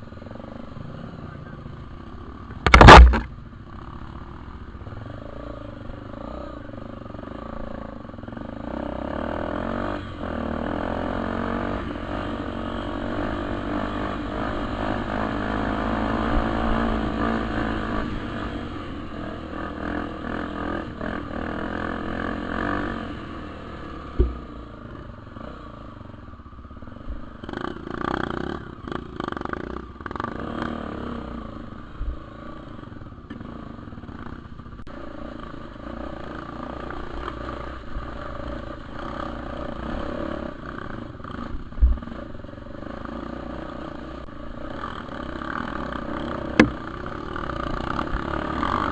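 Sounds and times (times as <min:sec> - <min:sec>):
dirt bike engine running: 0:00.0 - 0:30.9, 0:33.4 - 0:48.9
sharp knock: 0:02.6 - 0:03.3, 0:24.2 - 0:24.4, 0:46.6 - 0:46.8.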